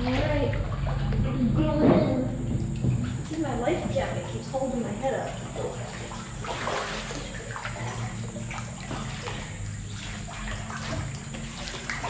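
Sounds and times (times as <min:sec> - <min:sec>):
water splashing around kayak: 0:02.5 - 0:12.0.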